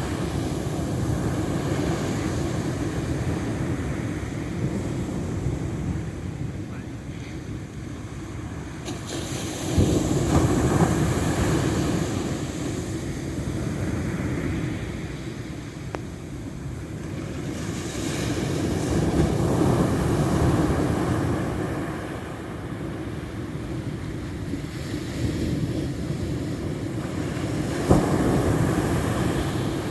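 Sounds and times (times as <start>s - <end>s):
ocean waves washing in: 0.0s - 29.9s.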